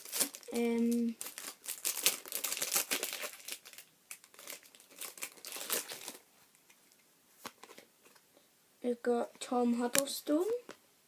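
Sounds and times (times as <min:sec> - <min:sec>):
foil packet tearing and crinkling: 0:00.0 - 0:06.2.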